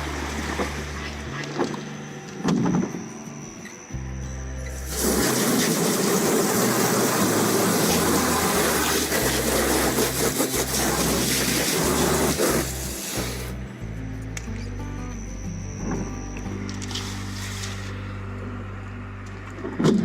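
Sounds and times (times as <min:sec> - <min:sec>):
water gushing: 0:00.0 - 0:01.4, 0:04.8 - 0:13.6
background music: 0:00.0 - 0:20.0.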